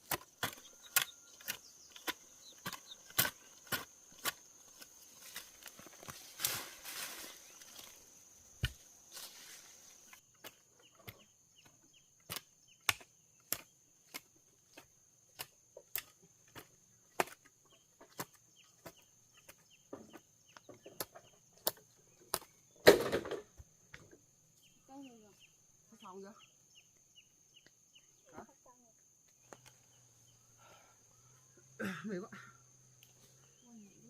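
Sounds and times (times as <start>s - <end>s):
blade chopping bamboo: 0.0s - 5.7s, 10.4s - 19.6s
rustling: 1.5s - 10.2s.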